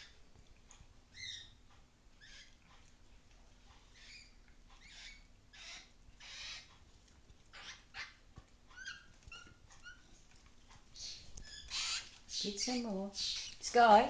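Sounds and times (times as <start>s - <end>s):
animal squeaky calls: 1.1s - 1.6s, 2.2s - 2.6s, 3.9s - 6.7s, 7.5s - 10.1s, 11.0s - 13.6s.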